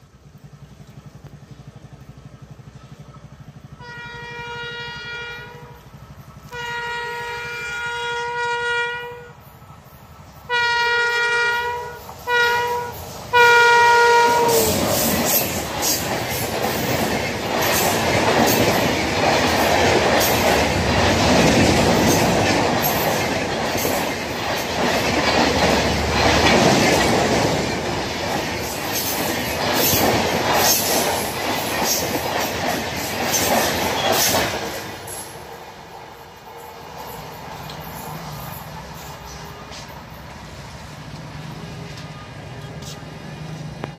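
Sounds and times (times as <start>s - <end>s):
train coaches rumbling past: 0.0s - 43.9s
train horn blasts: 3.7s - 9.5s, 10.4s - 15.1s.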